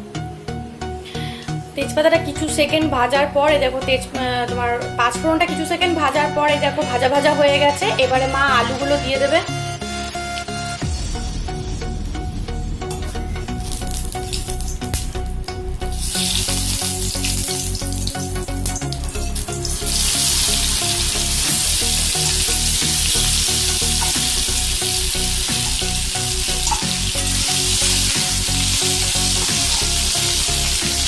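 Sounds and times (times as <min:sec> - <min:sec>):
potatoes sizzling in hot oil: 0:13.5 - 0:15.0, 0:15.9 - 0:31.0.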